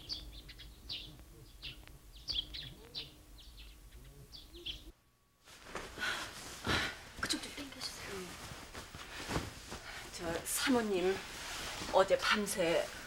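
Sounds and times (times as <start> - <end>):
small birds chirping: 0.0 - 5.0
quilt rustling: 5.4 - 13.0.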